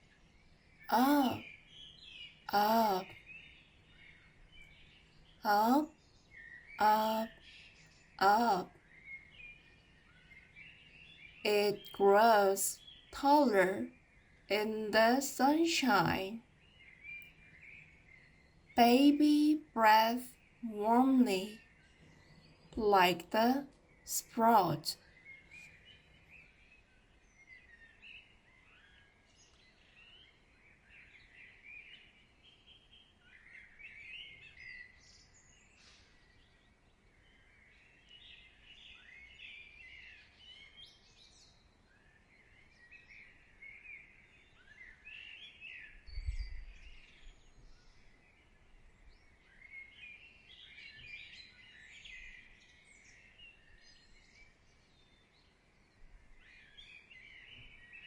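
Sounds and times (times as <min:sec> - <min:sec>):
small birds chirping: 0:00.0 - 0:58.0
soft background hiss: 0:14.5 - 0:16.4.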